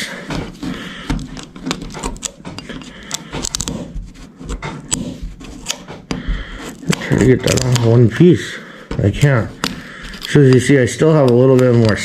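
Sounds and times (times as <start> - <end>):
body filler cracking and scraping off: 0.2 - 8.4.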